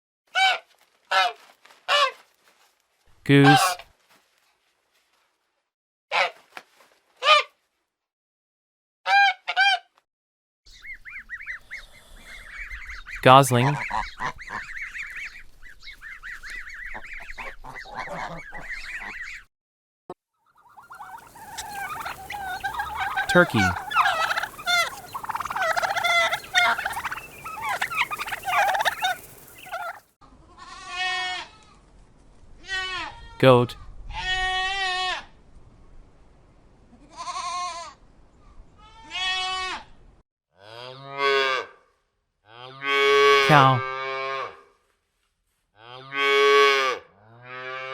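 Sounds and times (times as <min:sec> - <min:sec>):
goose honking: 0:03.4 - 0:03.8, 0:20.6 - 0:30.0
goslings peeping: 0:03.4 - 0:03.8, 0:10.7 - 0:19.4, 0:20.5 - 0:30.1
turkey gobbling: 0:03.4 - 0:03.8, 0:13.6 - 0:19.4, 0:20.5 - 0:30.1.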